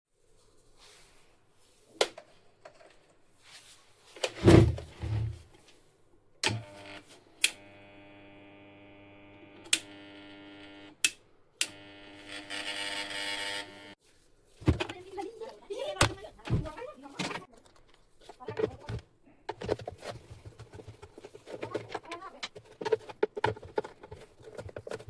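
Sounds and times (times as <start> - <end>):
small electric machine humming: 6.5 - 14.0.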